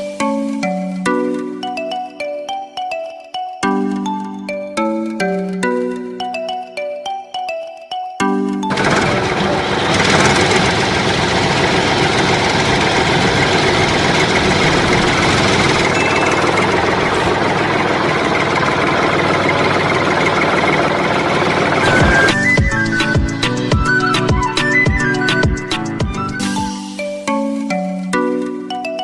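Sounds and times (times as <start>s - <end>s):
small engine running: 8.7s - 23.0s.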